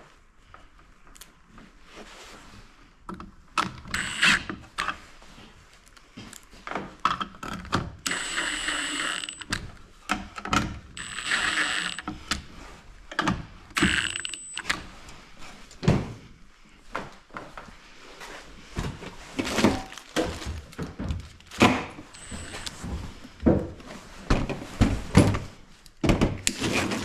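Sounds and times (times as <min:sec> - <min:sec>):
metal parts clicking and knocking: 0:13.8 - 0:14.7
thin high whine: 0:22.1 - 0:23.0.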